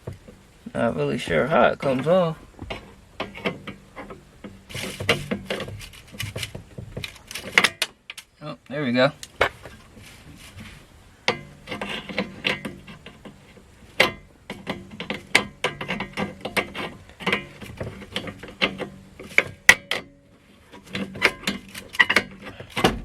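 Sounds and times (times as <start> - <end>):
small metal parts clicking and scraping: 3.2 - 8.4, 11.3 - 22.9.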